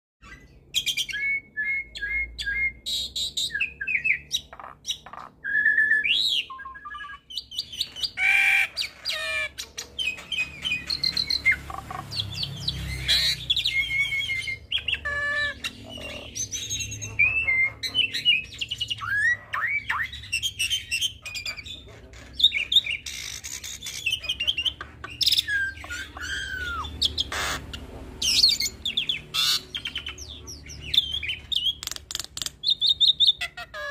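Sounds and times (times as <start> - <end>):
starling singing whistles and squawks: 0.2 - 33.9.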